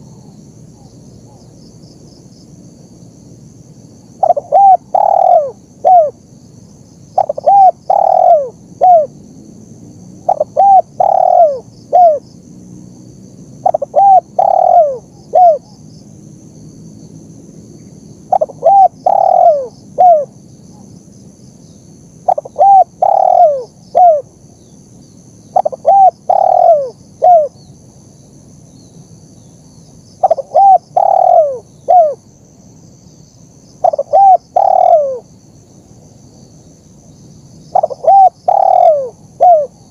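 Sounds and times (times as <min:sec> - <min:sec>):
dove cooing: 0:04.2 - 0:06.2, 0:07.2 - 0:09.1, 0:10.2 - 0:12.2, 0:13.6 - 0:15.8, 0:18.3 - 0:20.8, 0:22.3 - 0:24.4, 0:25.5 - 0:27.6, 0:30.2 - 0:32.2, 0:33.8 - 0:35.3, 0:37.7 - 0:39.9.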